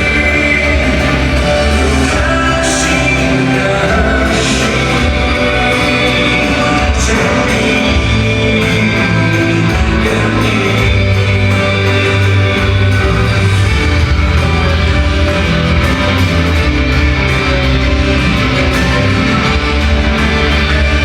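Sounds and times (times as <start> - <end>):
live rock band playing: 0.0 - 21.0
person singing: 0.0 - 21.0.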